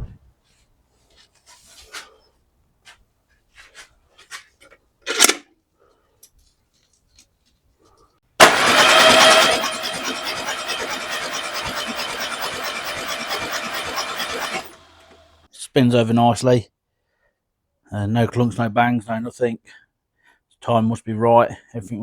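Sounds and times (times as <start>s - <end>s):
starter motor cranking engine: 8.4s - 15.5s.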